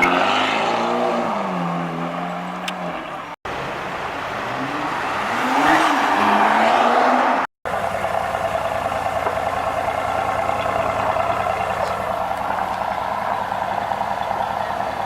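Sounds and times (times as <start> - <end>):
car engine revving: 0.0 - 15.0
car engine running steadily: 7.7 - 15.0.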